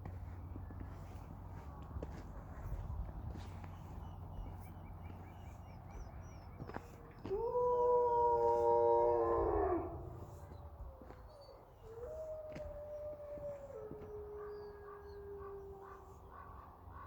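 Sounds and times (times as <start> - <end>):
wolves howling: 6.1 - 16.9.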